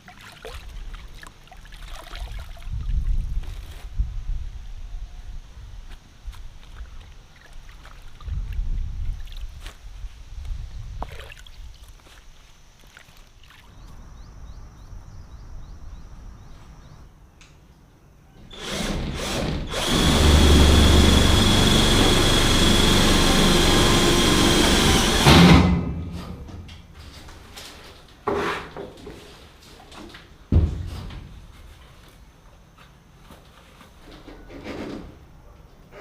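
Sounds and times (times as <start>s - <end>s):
power tool motor whining: 18.4s - 25.8s.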